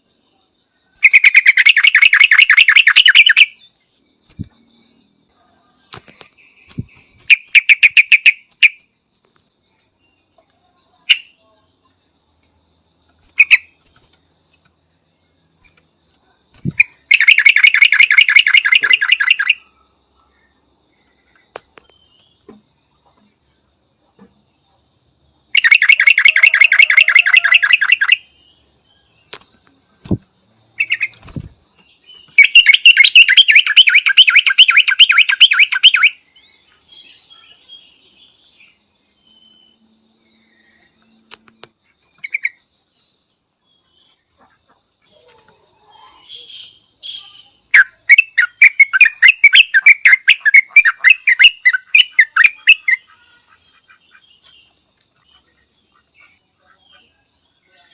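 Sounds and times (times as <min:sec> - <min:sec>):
bird chattering calls: 0:01.0 - 0:03.6, 0:06.7 - 0:08.8, 0:13.3 - 0:13.7, 0:16.6 - 0:19.6, 0:25.6 - 0:28.2, 0:32.3 - 0:36.2, 0:46.2 - 0:54.5.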